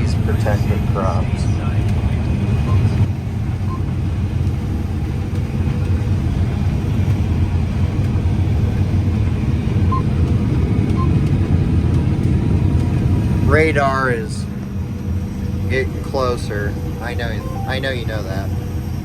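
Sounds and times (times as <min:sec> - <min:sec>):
harvester engine rumble: 0:00.0 - 0:18.2
faint short beeps: 0:17.4 - 0:18.1.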